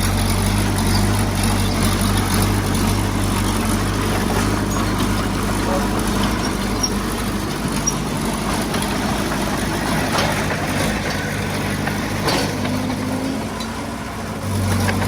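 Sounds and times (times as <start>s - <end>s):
heavy diesel engine running: 0.0s - 15.0s
faint metal clanks: 4.0s - 15.0s.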